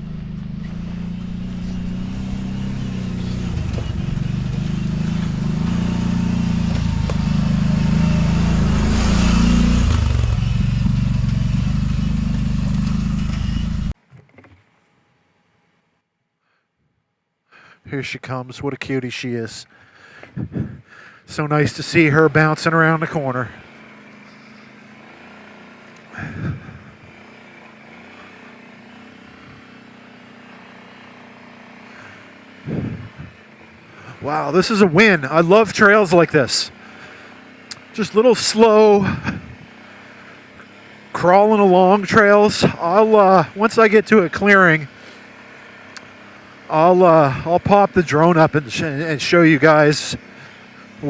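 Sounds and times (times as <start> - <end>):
atv engine idling: 0.0 - 14.0, 22.4 - 51.0
engine idling: 0.0 - 14.0.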